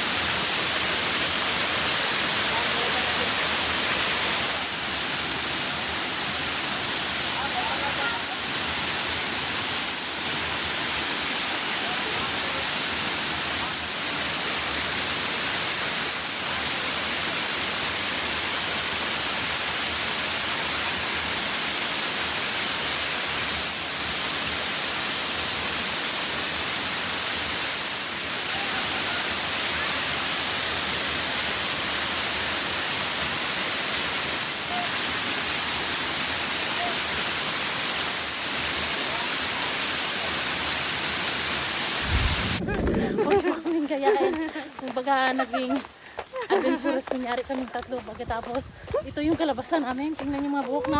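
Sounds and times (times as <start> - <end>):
waterfall rushing: 0.0 - 47.1.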